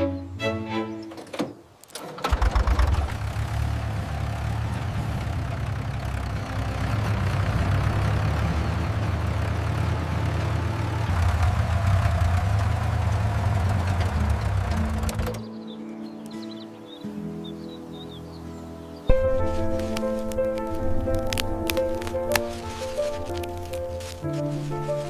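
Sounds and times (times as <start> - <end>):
music: 0.0 - 1.2, 14.7 - 25.0
tractor engine running: 1.1 - 15.5, 19.1 - 25.0.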